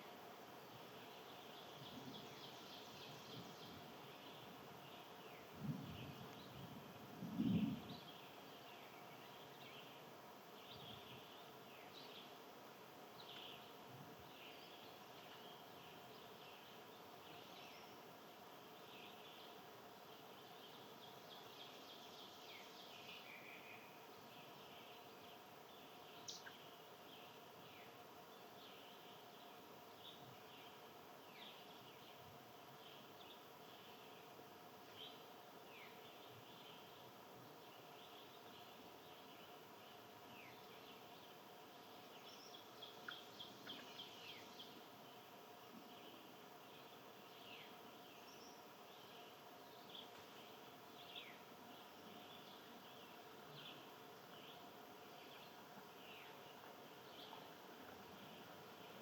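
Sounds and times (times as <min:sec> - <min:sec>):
faint steady hum: 0:00.0 - 0:59.0
small birds chirping: 0:00.0 - 0:59.0.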